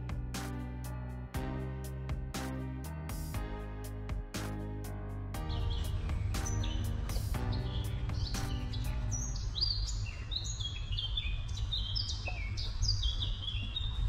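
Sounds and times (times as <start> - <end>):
background music: 0.0 - 10.2
steady low rumble: 0.0 - 14.0
bird singing whistled notes: 5.4 - 14.0.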